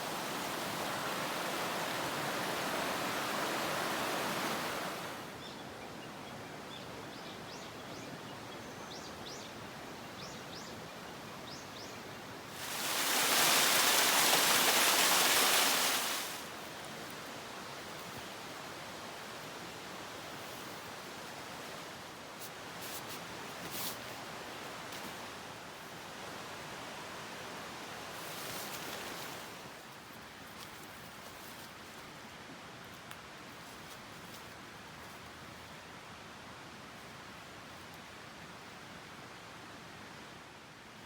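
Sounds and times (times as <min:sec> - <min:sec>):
mountain stream rushing: 0:00.0 - 0:05.4, 0:12.2 - 0:29.8.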